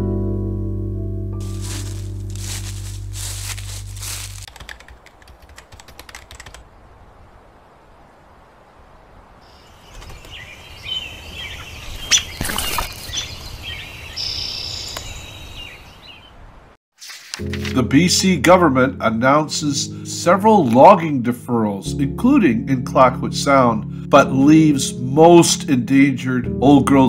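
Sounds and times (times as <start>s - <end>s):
background music: 0.0s - 4.4s, 17.4s - 27.0s
rapid crackling clicks: 4.1s - 6.7s
small birds chirping: 9.4s - 16.4s.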